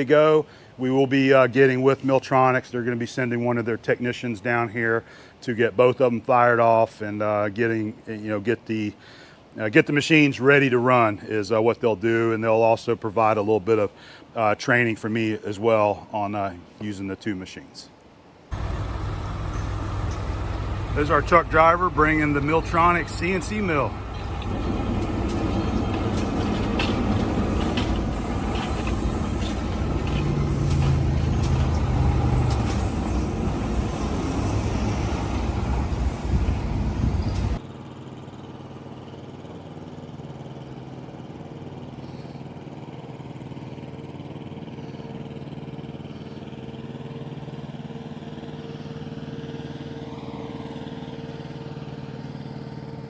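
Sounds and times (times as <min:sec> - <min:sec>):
truck engine running: 0:18.5 - 0:53.0.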